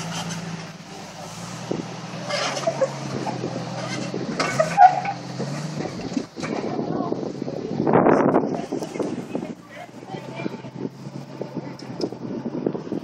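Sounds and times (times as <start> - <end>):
squeaking and scraping: 0.0 - 6.8
vehicle engine at low revs: 0.0 - 13.0.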